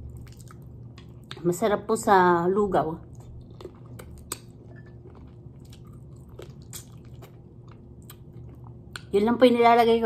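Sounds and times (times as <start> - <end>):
person chewing with wet smacks: 0.0 - 1.6, 3.0 - 9.2.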